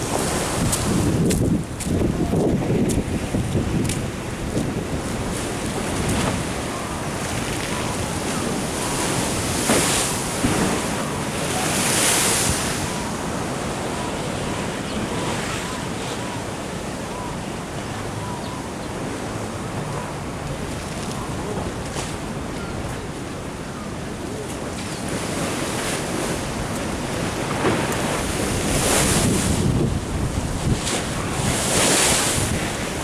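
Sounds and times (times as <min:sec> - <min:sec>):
wind buffeting microphone: 0:00.0 - 0:15.6, 0:24.6 - 0:33.0
ocean surf washing in: 0:00.0 - 0:18.3, 0:18.9 - 0:33.0.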